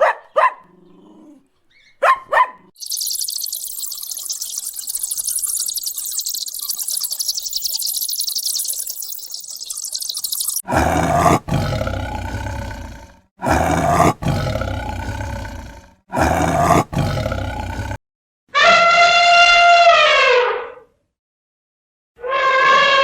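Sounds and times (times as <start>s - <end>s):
high-pitched hiss: 2.8s - 10.6s
big cat roaring: 10.7s - 18.0s.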